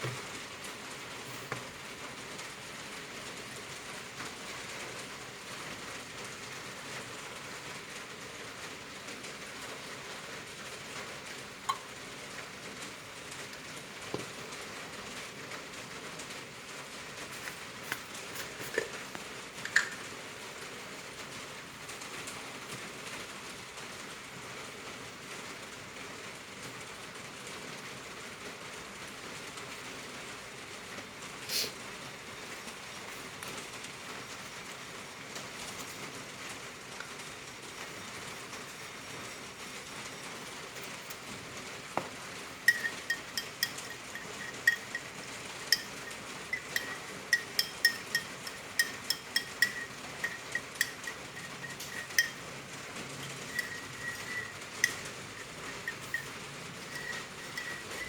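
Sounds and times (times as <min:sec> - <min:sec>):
sharp clicks and knocks: 0:42.7 - 0:52.4, 0:53.0 - 0:58.0.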